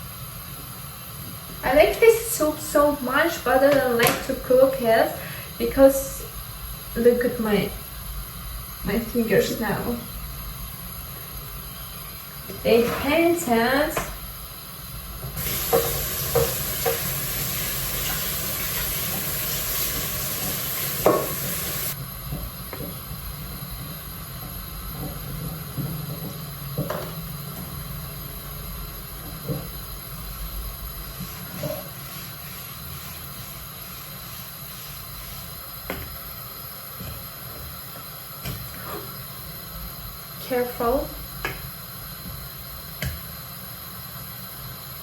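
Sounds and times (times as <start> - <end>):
loud steady hiss: 0.0 - 22.2.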